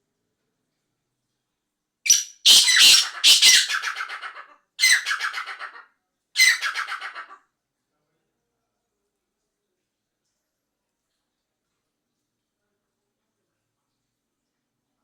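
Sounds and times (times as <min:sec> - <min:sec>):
francolin harsh grating calls: 0:02.1 - 0:03.9.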